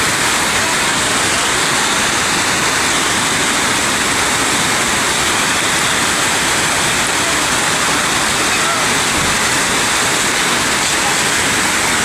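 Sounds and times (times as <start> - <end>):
fast-flowing river water: 0.0 - 12.0.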